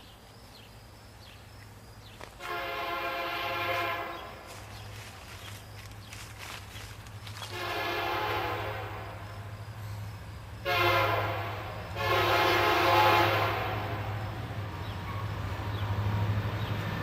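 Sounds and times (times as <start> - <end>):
locomotive air horn blasts: 2.4 - 4.6, 7.4 - 9.5, 10.6 - 14.4.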